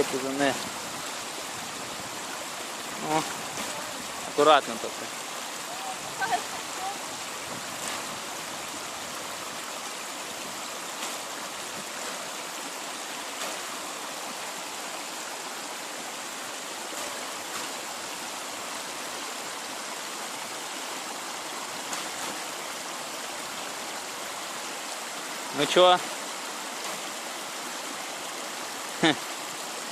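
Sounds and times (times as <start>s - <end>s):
river flowing: 0.0s - 29.9s.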